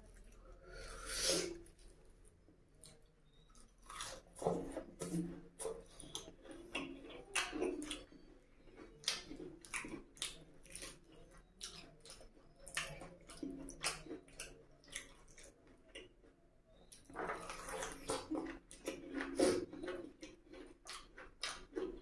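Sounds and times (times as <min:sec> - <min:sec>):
close chewing: 0:01.5 - 0:22.0
wet mouth clicks and smacks: 0:11.6 - 0:16.1, 0:16.9 - 0:22.0.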